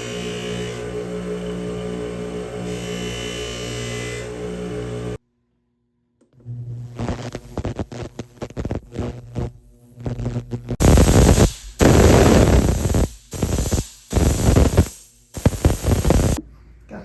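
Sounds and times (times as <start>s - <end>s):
pressurised spray hissing: 10.8s - 16.4s.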